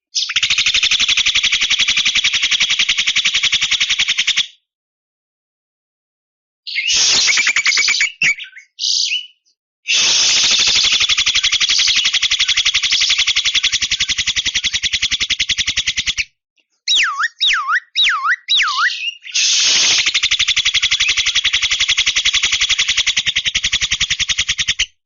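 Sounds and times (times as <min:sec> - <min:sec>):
bird harsh rasping calls: 0:06.7 - 0:25.0.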